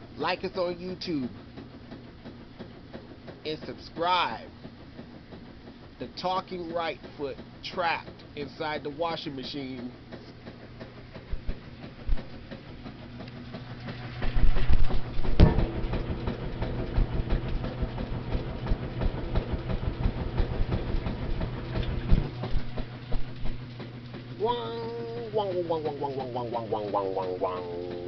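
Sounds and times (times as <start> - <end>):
washing machine running: 0.0 - 28.0
sharp knock: 15.3 - 15.9.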